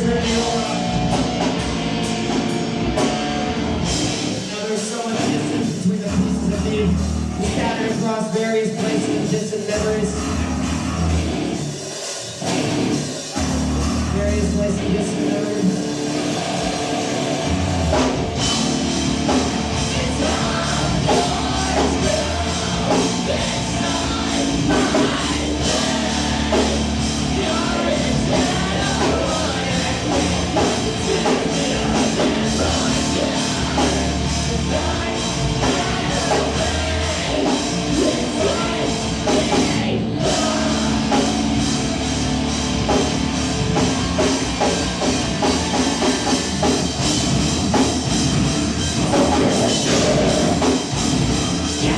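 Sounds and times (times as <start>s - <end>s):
rock band playing: 0.0s - 51.9s
person singing: 19.3s - 41.6s, 49.0s - 50.9s.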